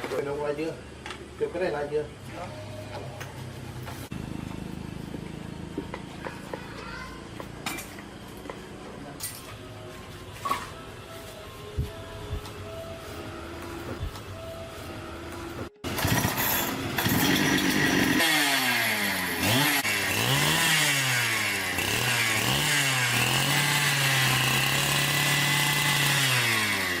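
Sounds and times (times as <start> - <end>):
chainsaw engine revving: 15.6 - 27.0.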